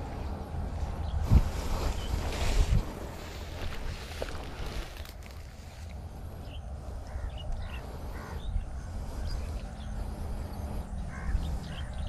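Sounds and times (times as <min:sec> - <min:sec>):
wind rumble on microphone: 0:00.0 - 0:12.0
bird calls: 0:06.4 - 0:12.0.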